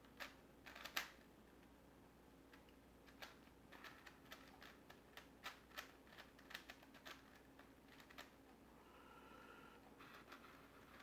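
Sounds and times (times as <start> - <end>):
plastic puzzle clicking: 3.1 - 8.3.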